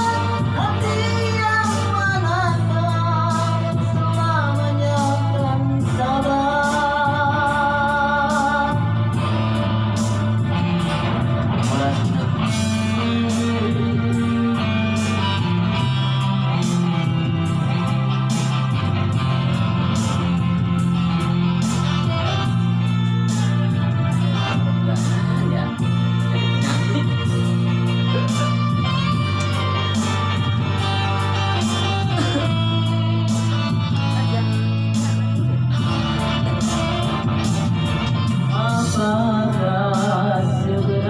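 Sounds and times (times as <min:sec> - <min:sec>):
person singing: 0:00.0 - 0:09.4, 0:11.5 - 0:15.9, 0:22.9 - 0:30.9, 0:38.1 - 0:41.0
band with guitar and drums: 0:00.0 - 0:41.0.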